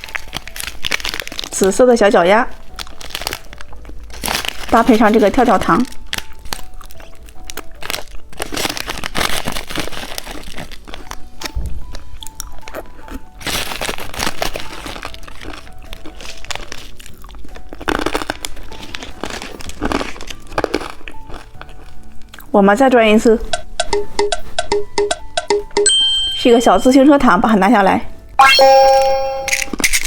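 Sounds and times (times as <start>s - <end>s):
candy crunching and crackling: 0.0s - 23.3s, 29.3s - 30.0s.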